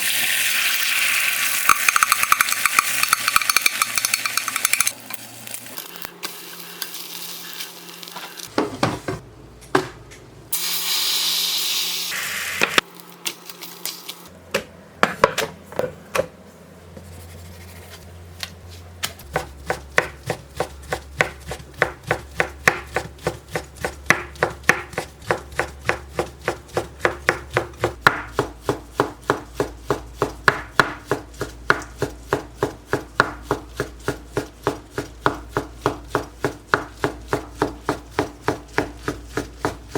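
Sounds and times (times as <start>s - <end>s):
kitchen handling sounds: 8.1s - 10.3s
knife chopping on wooden board: 19.0s - 39.9s.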